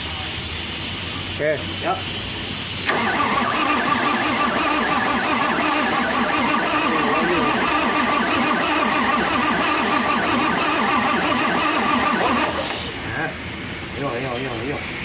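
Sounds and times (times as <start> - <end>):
diesel engine cranking on starter: 2.7 - 13.2.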